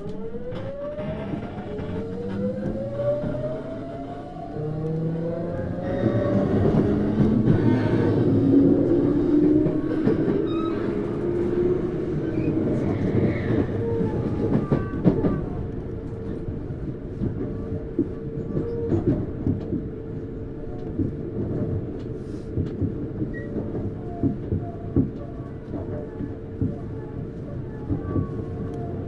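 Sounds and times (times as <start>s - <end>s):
rumble of train: 0.0s - 29.0s
wheels clacking at rail joints: 4.8s - 16.6s.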